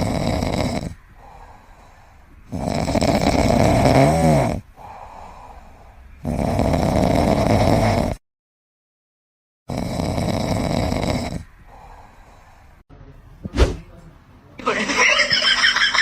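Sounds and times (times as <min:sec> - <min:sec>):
pet snoring: 0:00.0 - 0:01.5, 0:02.4 - 0:05.2, 0:06.2 - 0:08.2, 0:09.7 - 0:12.0.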